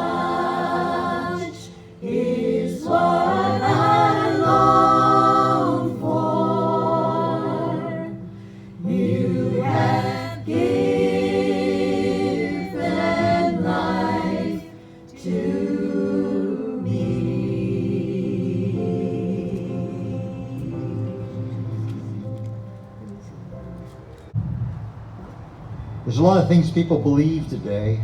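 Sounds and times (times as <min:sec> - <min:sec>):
group singing a hymn: 0:00.0 - 0:22.8.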